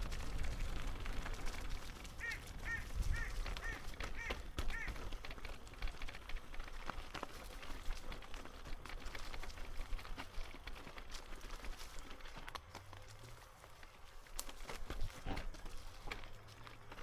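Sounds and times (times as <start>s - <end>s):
bird giving harsh calls: 2.2s - 5.0s.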